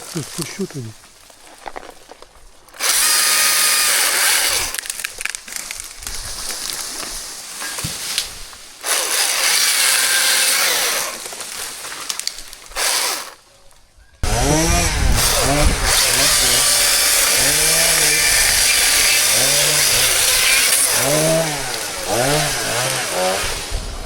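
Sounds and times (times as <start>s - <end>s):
chainsaw engine revving: 2.8s - 5.4s, 8.8s - 13.4s, 14.2s - 24.0s.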